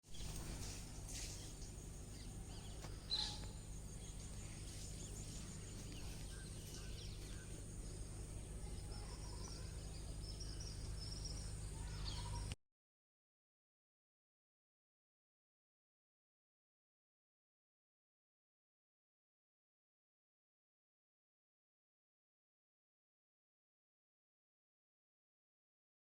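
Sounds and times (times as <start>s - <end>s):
birds chirping: 0.0s - 12.6s
low hum: 0.0s - 12.6s.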